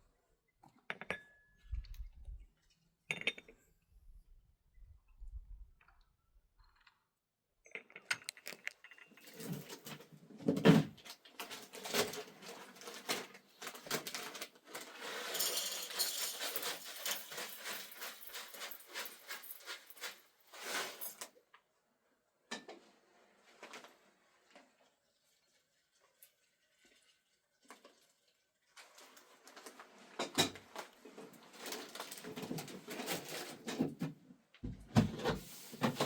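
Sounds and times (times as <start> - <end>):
small objects clinking: 7.7 - 10.0, 11.4 - 21.3.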